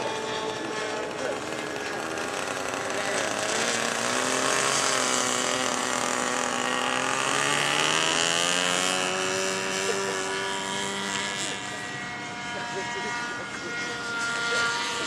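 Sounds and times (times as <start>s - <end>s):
high whine: 0.0s - 15.0s
model aircraft engine buzzing: 0.0s - 15.0s.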